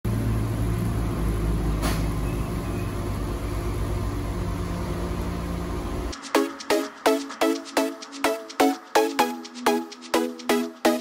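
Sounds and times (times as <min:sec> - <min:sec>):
car engine running steadily: 0:00.1 - 0:06.1
music with sharp struck notes: 0:06.1 - 0:11.0.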